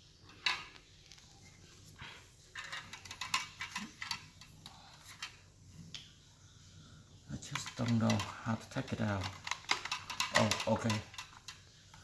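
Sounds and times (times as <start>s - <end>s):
plastic clicks and scrapes: 2.5s - 5.4s, 7.5s - 12.0s.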